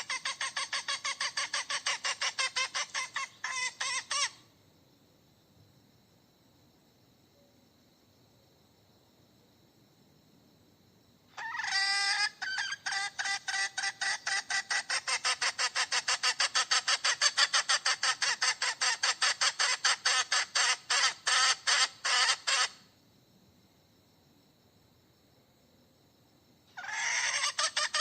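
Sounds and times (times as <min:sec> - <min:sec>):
hen cackling: 0:00.0 - 0:04.4, 0:11.3 - 0:22.8, 0:26.7 - 0:28.0.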